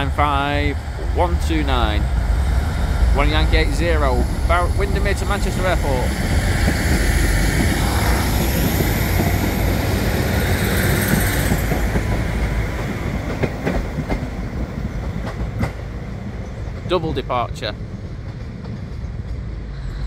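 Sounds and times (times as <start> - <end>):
diesel train engines running: 0.0 - 20.0
high whine: 1.1 - 10.0.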